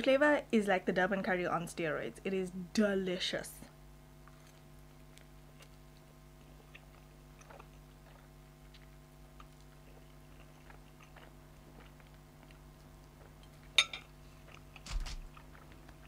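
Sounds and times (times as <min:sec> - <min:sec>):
low electrical hum: 0:00.0 - 0:16.0
person chewing noodles: 0:04.2 - 0:16.0.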